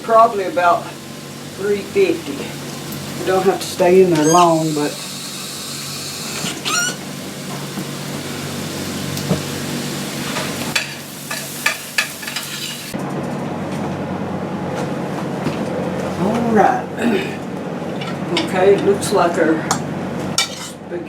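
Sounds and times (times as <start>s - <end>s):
pot hissing on stovetop: 0.2s - 13.0s.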